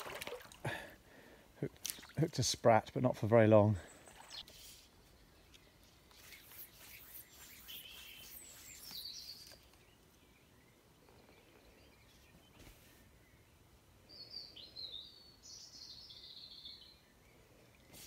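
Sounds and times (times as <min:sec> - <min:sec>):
quiet riverside ambience: 0:00.0 - 0:18.0
faint bird chirps: 0:03.8 - 0:18.0.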